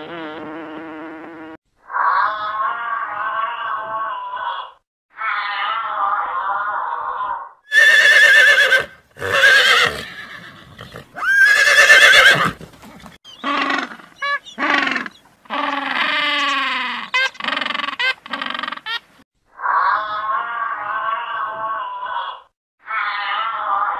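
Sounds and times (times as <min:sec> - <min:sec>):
animal calls: 0:07.7 - 0:23.9.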